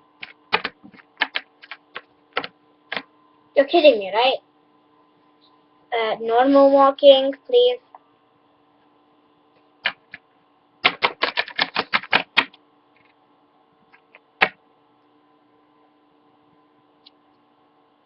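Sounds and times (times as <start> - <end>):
plastic toy tapping on surface: 10.8 - 12.6.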